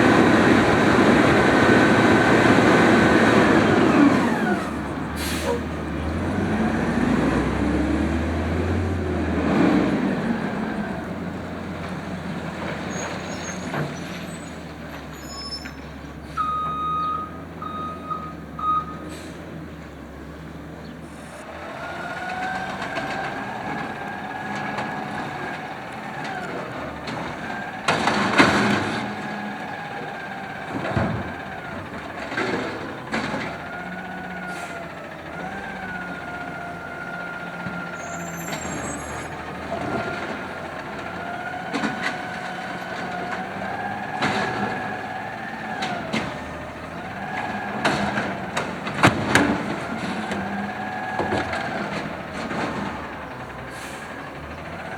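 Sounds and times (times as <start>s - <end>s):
garbage truck diesel engine: 0.0s - 54.9s
short beeps: 16.4s - 19.1s.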